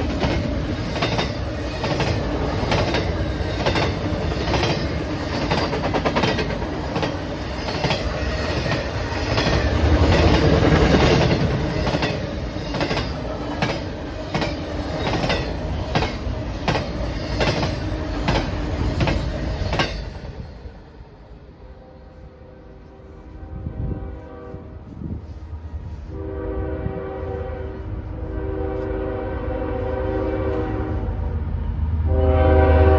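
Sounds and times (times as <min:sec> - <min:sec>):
train wheels clacking on rail joints: 0:00.0 - 0:20.5
train rumble: 0:00.0 - 0:32.9.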